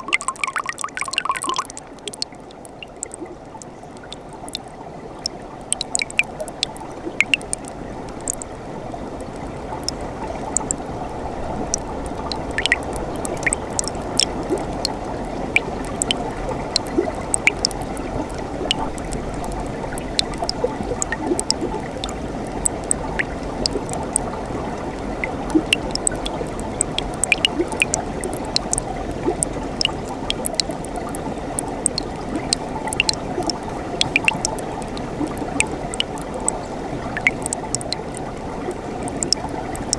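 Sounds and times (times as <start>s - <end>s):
stream water rushing over rocks: 0.0s - 2.6s
water splashes and drips: 0.0s - 39.9s.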